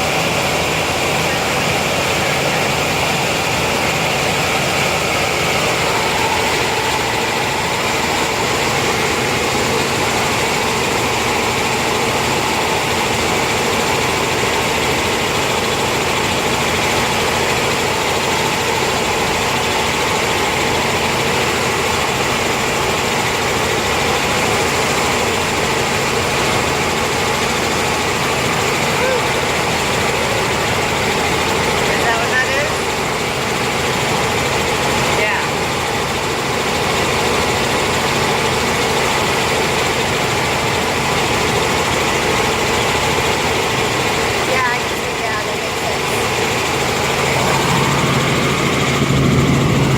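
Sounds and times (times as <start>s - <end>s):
helicopter drone: 0.0s - 49.9s
whining tones: 1.2s - 11.7s, 44.5s - 49.9s.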